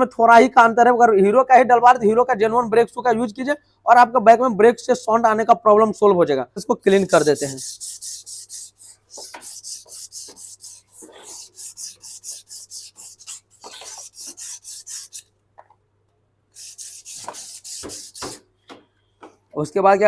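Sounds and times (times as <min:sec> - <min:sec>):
sandpaper scraping metal: 0:06.9 - 0:15.2, 0:16.6 - 0:18.4.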